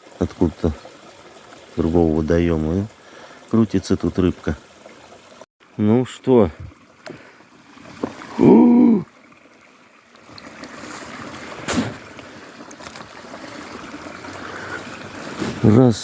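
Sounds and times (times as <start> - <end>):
water trickling and splashing: 0.0 - 16.0
person humming: 8.3 - 9.1.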